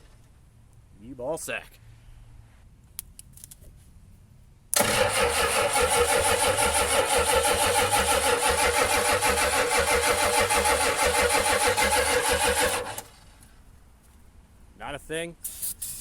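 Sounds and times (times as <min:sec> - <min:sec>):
starter cranking diesel engine: 0:04.8 - 0:13.4.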